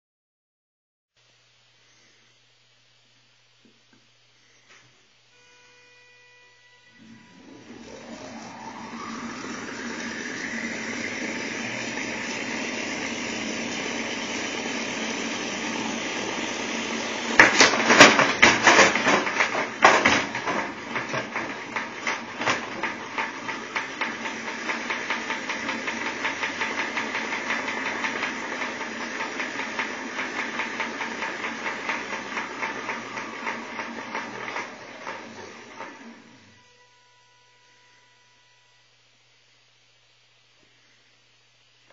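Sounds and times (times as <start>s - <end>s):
electric motor whine: 5.4s - 18.4s
crashing and clattering parts: 17.4s - 23.3s
rapid steady knocking: 17.4s - 34.3s.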